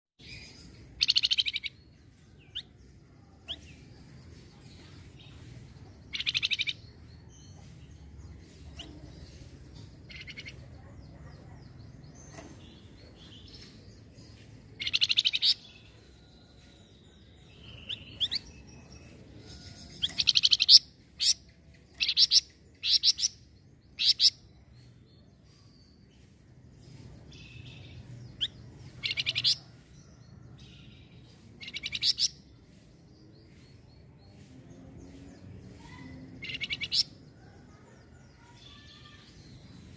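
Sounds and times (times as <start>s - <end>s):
songbird chattering: 0.9s - 1.8s, 6.0s - 6.9s, 8.4s - 11.8s, 19.6s - 24.5s, 27.7s - 29.7s, 31.6s - 32.4s, 35.8s - 37.2s.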